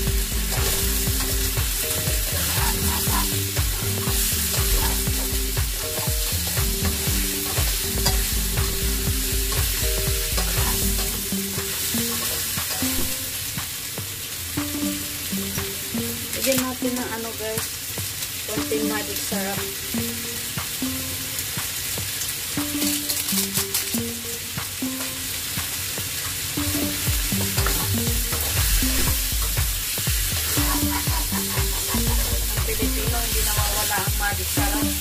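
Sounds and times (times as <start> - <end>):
food sizzling in wok: 0.0 - 35.0
spatula scraping pan: 0.5 - 8.8, 9.5 - 13.1, 30.4 - 34.1.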